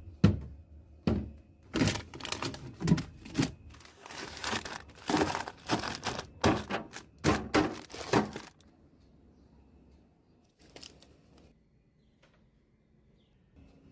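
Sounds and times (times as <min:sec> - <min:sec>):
containers clacking being set down: 0:01.2 - 0:08.6
packaging rustle: 0:01.7 - 0:08.6, 0:10.6 - 0:11.1.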